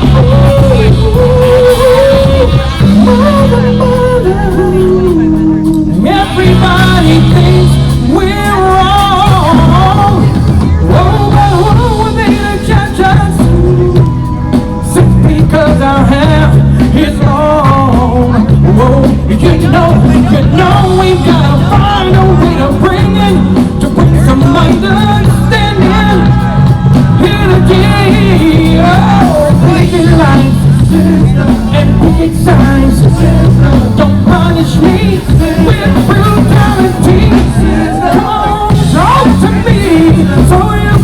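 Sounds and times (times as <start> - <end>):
live band playing: 0.0 - 41.0
person singing: 0.0 - 41.0.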